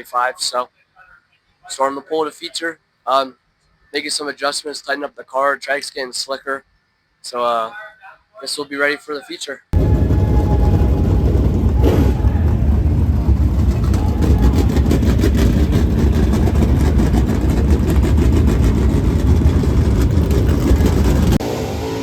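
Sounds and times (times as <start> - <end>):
race car engine running loud: 9.8 - 22.0.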